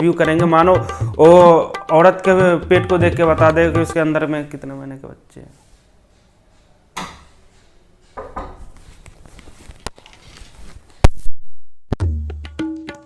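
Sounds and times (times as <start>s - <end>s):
tabla music: 0.0s - 4.4s, 12.0s - 13.0s
objects knocking and clattering: 7.0s - 9.1s.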